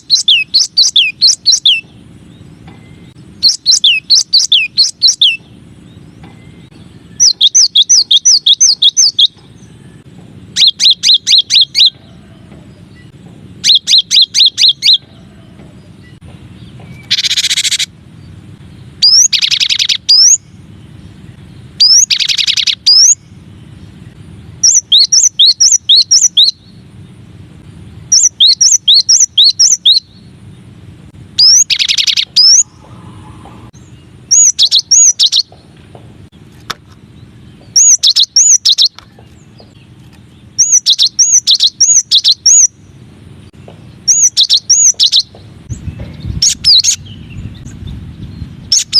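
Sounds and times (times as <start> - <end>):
bird whistling song: 0.0 - 17.9, 18.7 - 26.8, 28.1 - 30.3, 31.4 - 35.8, 37.3 - 42.9, 43.5 - 48.9
harsh buzzy bird call: 7.0 - 16.2, 16.9 - 18.0, 31.4 - 35.8.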